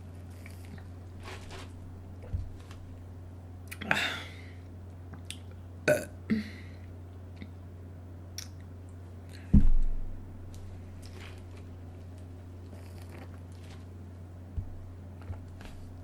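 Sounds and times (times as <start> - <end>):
steady low hum: 0.0 - 16.0
heavy low thump: 9.5 - 10.5, 14.6 - 14.8
close eating mouth noises: 12.6 - 13.5.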